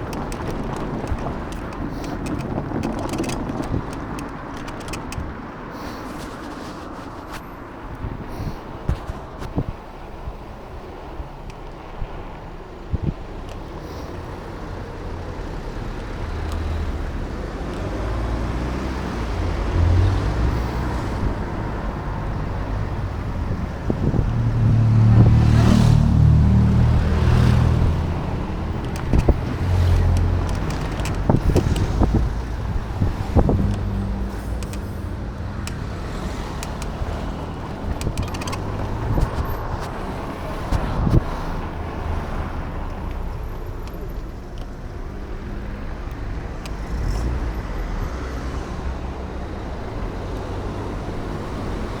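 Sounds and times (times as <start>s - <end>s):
wind on microphone: 0.0s - 13.5s, 18.4s - 42.8s
road and traffic noise: 0.0s - 52.0s
vehicle passing rumble: 0.0s - 52.0s.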